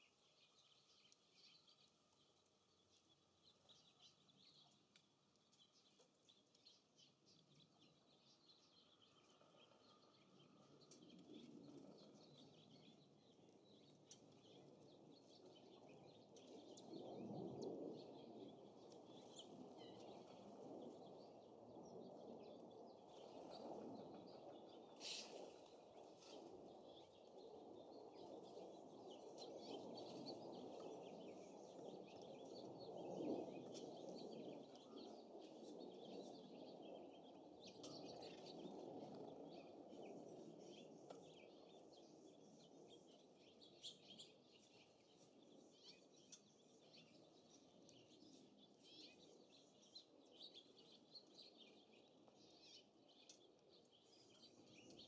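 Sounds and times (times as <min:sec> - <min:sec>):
songbirds chirping: 0:00.0 - 0:55.0
wind gusting over microphone: 0:14.5 - 0:44.4.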